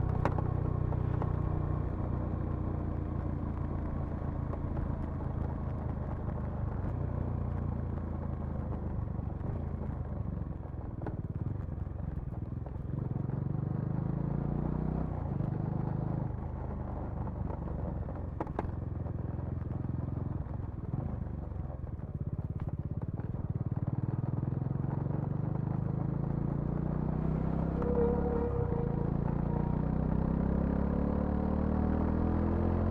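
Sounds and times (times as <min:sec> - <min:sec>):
motorcycle engine revving: 0:26.8 - 0:32.9.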